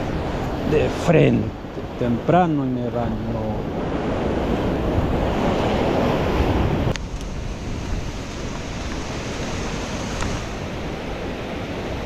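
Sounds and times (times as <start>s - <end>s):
ocean surf washing in: 0.0s - 12.0s
wind on microphone: 0.0s - 12.0s.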